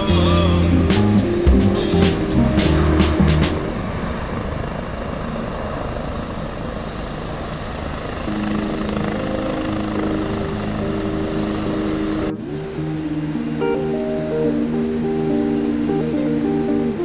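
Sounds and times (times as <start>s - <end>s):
background music: 0.0s - 3.7s.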